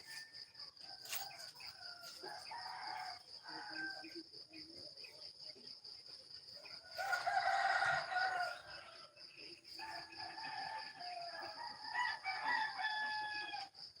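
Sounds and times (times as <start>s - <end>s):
rooster crowing: 7.0s - 8.8s, 10.0s - 13.7s.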